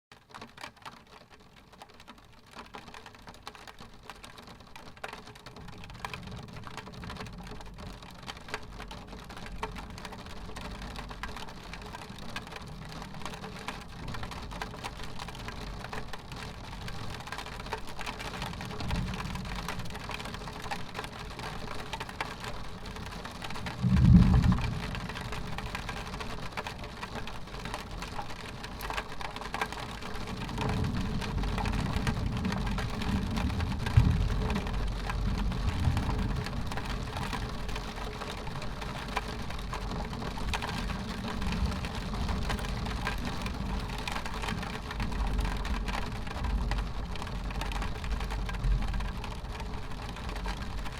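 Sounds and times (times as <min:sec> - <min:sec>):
rain pattering on a window: 0:00.1 - 0:50.9
thunder clap: 0:23.6 - 0:25.9, 0:30.4 - 0:37.6
distant thunder rumbling: 0:23.7 - 0:25.7, 0:30.4 - 0:37.6.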